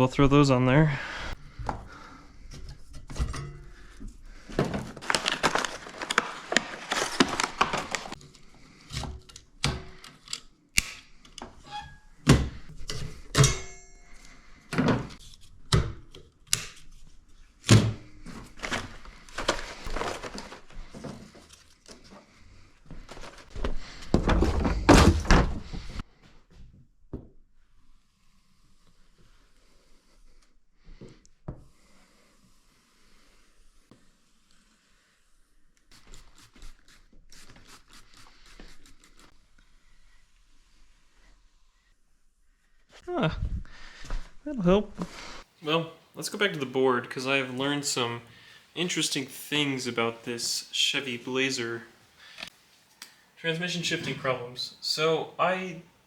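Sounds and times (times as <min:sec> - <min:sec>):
rustling: 0:03.8 - 0:08.8, 0:18.1 - 0:26.0.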